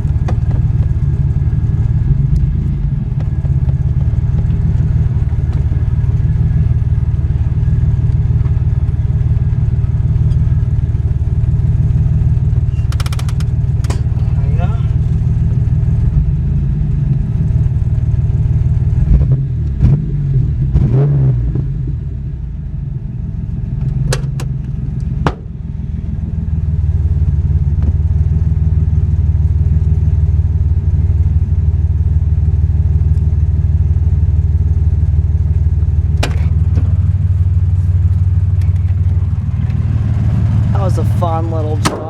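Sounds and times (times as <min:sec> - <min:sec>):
engine and exhaust drone: 0:00.0 - 0:42.0
knocks and rattles: 0:12.7 - 0:14.4, 0:23.9 - 0:25.6, 0:36.1 - 0:37.3.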